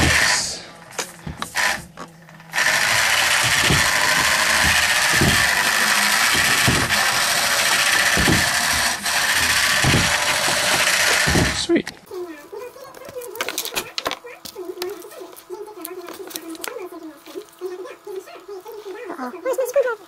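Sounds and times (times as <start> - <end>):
electric motor whirring: 0.0 - 11.8.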